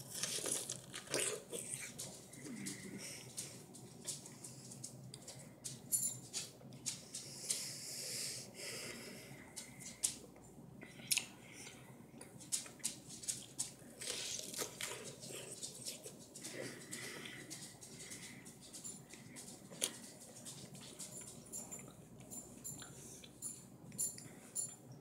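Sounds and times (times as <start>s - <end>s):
person chewing pear: 0.0s - 3.6s, 10.8s - 22.0s.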